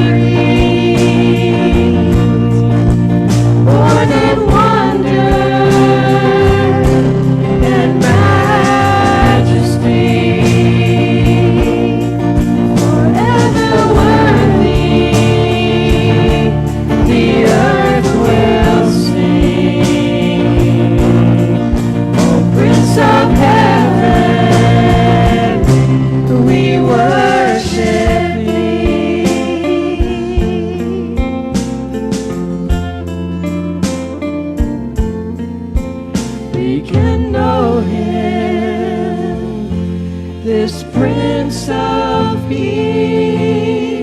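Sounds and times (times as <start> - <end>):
people singing long notes: 0.0 - 31.4, 36.5 - 44.0
worship band playing: 0.0 - 44.0.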